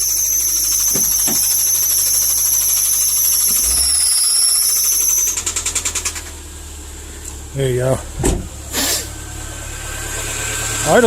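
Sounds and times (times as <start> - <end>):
car engine running with whine: 0.0 - 11.0.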